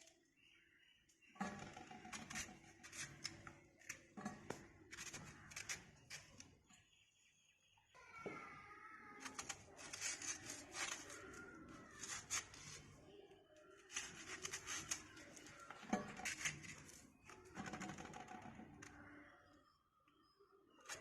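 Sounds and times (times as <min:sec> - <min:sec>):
crunching raw mango: 0:09.3 - 0:12.9.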